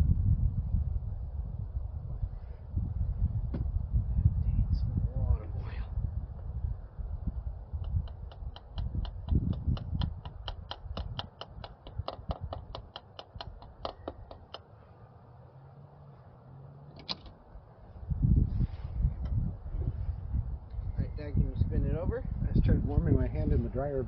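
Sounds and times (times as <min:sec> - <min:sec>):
low handling rumble: 0:00.0 - 0:24.0
rapid small mechanical clicks: 0:07.8 - 0:14.6
sharp click: 0:07.8 - 0:14.6.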